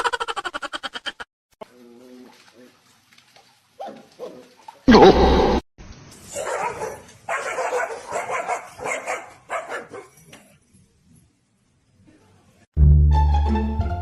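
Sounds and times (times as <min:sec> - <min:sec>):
dog barking: 0:03.8 - 0:04.4, 0:06.3 - 0:10.2.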